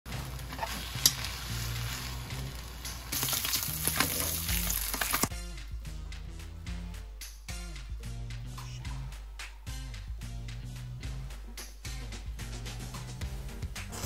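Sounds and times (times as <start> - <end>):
food sizzling in a frying pan: 0.1 - 5.3
background music: 0.1 - 14.0.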